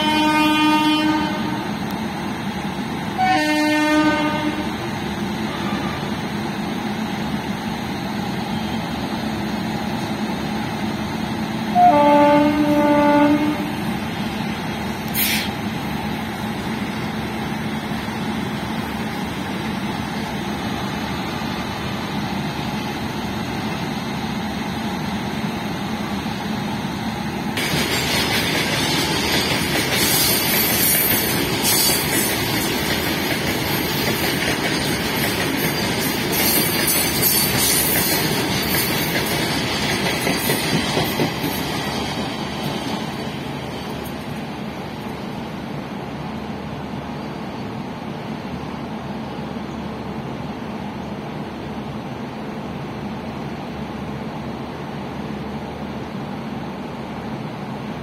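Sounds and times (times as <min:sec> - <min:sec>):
locomotive horn chord: 0:00.0 - 0:01.7, 0:03.2 - 0:04.7, 0:11.7 - 0:13.8
freight train rumbling past: 0:00.0 - 0:58.0
wheels clattering on rails: 0:27.5 - 0:44.5.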